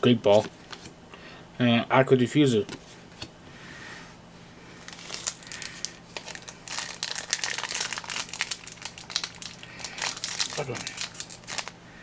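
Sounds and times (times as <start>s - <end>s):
foil wrapper crinkling: 4.8s - 11.8s.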